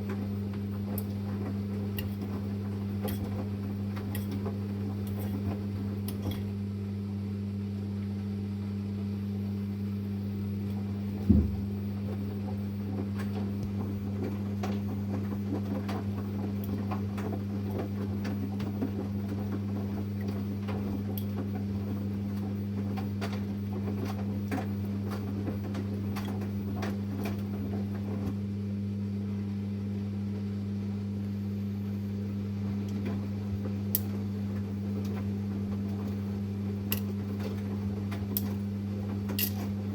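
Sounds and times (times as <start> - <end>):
washing machine humming: 0.0 - 39.9
washing machine thump: 11.2 - 11.8.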